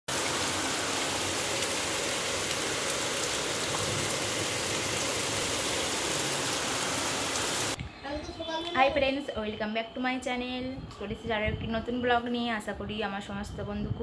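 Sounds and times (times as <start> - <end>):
heavy rain falling: 0.1 - 7.8.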